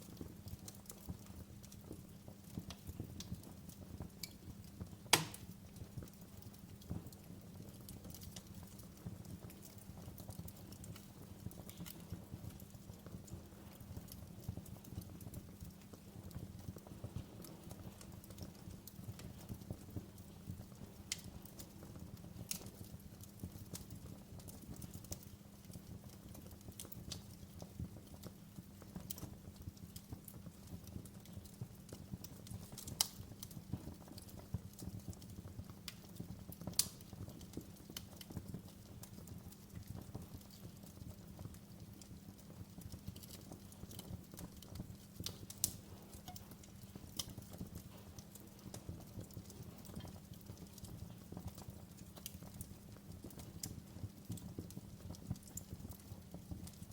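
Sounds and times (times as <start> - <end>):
fire popping and snapping: 0.0 - 56.9
fire rumbling: 0.0 - 56.9.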